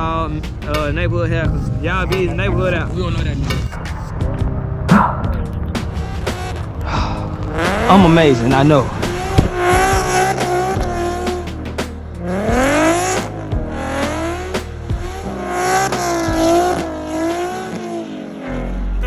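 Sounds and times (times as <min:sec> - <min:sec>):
background music with bass line: 0:00.0 - 0:19.0
car engine revving hard: 0:05.8 - 0:18.9.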